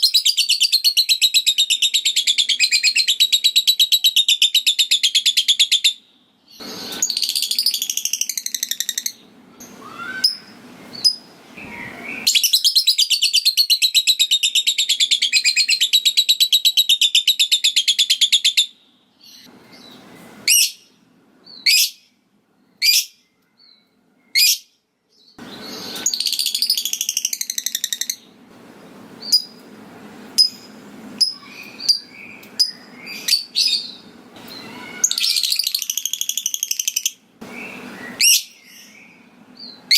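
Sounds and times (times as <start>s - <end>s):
lovebird chattering trills: 30.4s - 38.5s.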